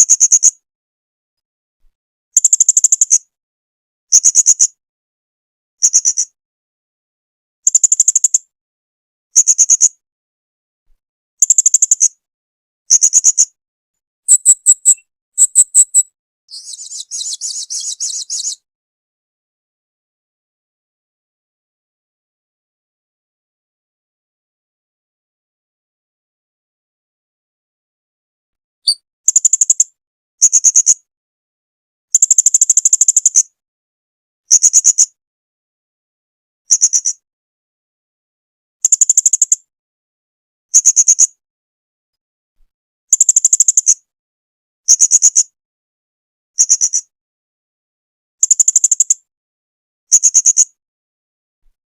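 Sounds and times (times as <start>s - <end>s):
parrot high chirps and trills: 14.3s - 18.6s.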